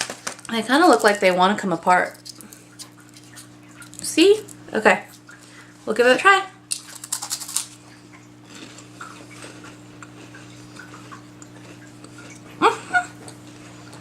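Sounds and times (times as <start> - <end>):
steady low hum: 0.0 - 14.0
faint chewing: 2.0 - 5.7, 6.7 - 14.0
crunchy wafer bite: 6.7 - 14.0.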